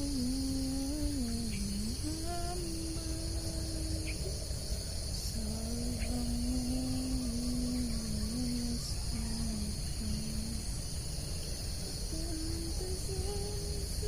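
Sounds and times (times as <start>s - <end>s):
crickets and insects chirping: 0.0s - 14.0s.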